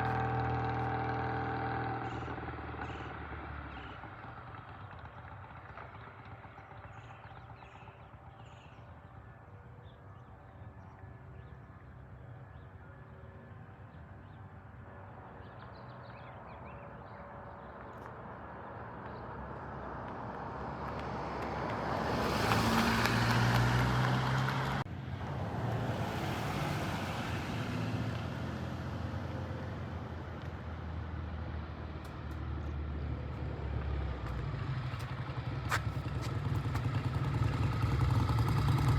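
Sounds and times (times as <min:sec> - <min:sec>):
motorcycle engine running: 0:00.0 - 0:11.5, 0:29.4 - 0:38.9.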